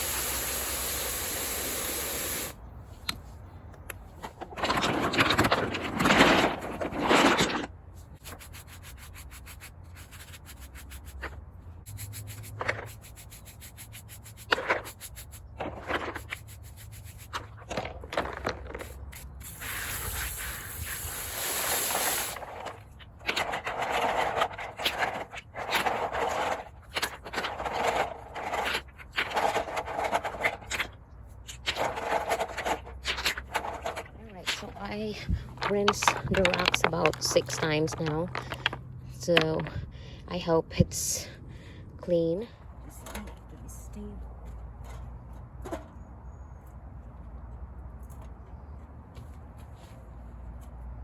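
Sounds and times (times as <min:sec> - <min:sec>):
scrubbing strokes: 0:11.9 - 0:17.5
rocks scraping in water: 0:31.6 - 0:39.8.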